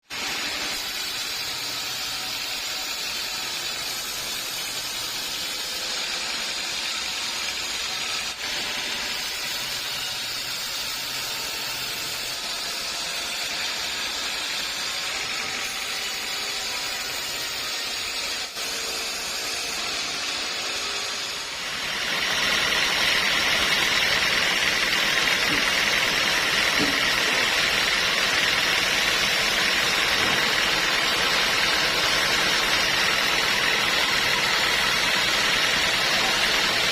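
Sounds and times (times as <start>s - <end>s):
sawmill saw and machinery running: 0.0s - 36.9s.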